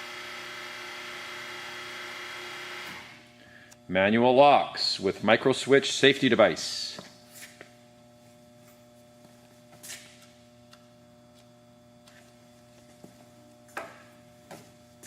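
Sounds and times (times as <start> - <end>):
faint electrical hum: 1.4 - 15.0.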